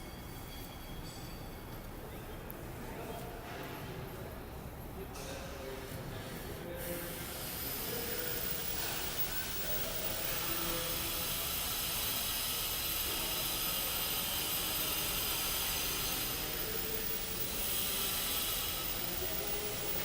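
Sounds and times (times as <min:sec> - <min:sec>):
steady hissing noise: 0:06.6 - 0:20.0.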